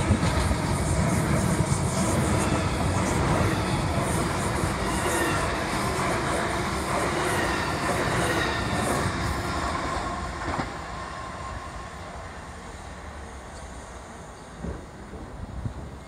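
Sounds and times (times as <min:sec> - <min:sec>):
train wheels on rail: 0:00.0 - 0:16.0.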